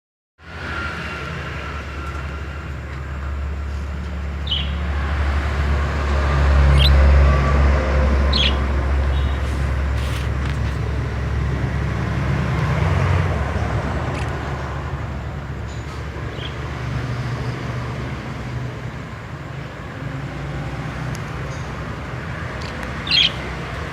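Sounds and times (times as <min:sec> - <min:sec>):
low traffic rumble: 0:00.4 - 0:23.9
bird chirping: 0:04.4 - 0:04.8, 0:06.6 - 0:07.1, 0:08.3 - 0:09.5, 0:22.5 - 0:23.6.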